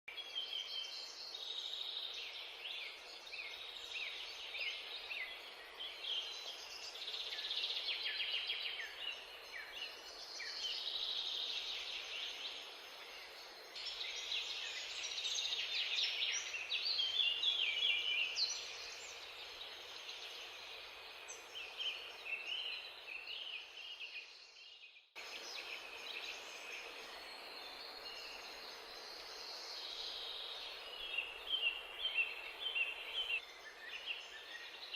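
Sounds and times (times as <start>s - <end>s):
small birds chirping: 0.1s - 34.9s
steady hiss: 25.2s - 34.9s.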